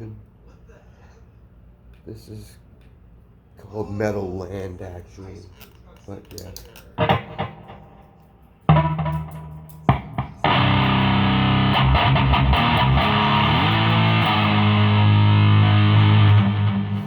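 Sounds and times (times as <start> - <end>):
distorted electric guitar chords: 7.0 - 17.0.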